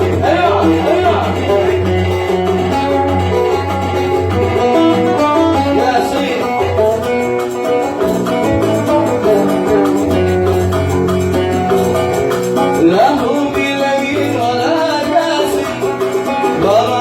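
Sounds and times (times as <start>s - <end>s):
oud playing plucked notes: 0.0s - 17.0s.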